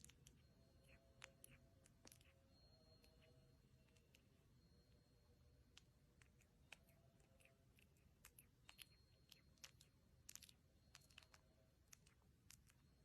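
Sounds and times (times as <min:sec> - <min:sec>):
faint small clicks: 0:00.0 - 0:02.4, 0:05.7 - 0:12.9.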